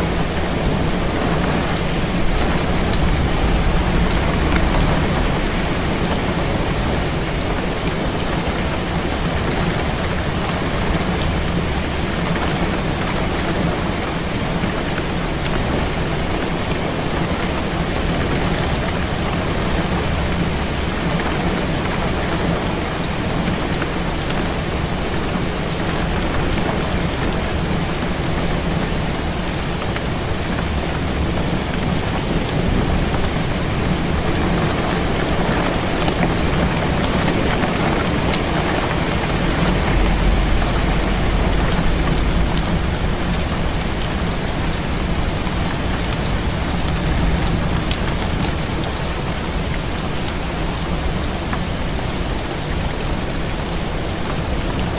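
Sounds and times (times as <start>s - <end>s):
heavy rain on a window: 0.0s - 54.9s
low rumble: 0.2s - 8.2s, 36.8s - 48.1s.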